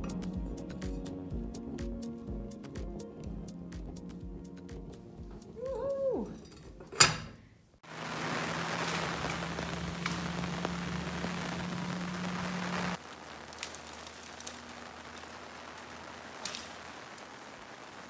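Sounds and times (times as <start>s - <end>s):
heavy rain hissing: 7.8s - 18.0s
low hum: 8.0s - 13.5s.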